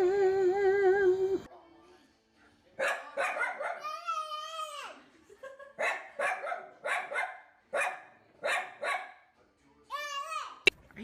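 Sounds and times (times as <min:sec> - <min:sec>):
dog barking: 0:02.8 - 0:04.0, 0:05.8 - 0:09.3.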